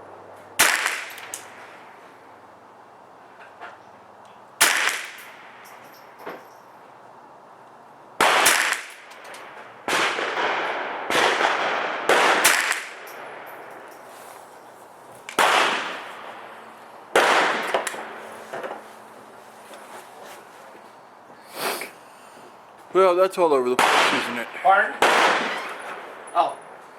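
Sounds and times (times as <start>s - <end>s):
rifle shots with echo: 0.6s - 1.6s, 4.6s - 5.6s, 8.2s - 13.8s, 15.4s - 18.2s, 23.8s - 26.3s.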